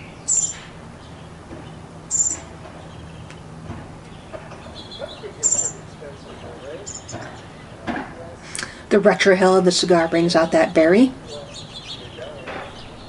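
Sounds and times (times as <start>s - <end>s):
small bird chirping: 0.0s - 7.8s, 11.2s - 13.0s.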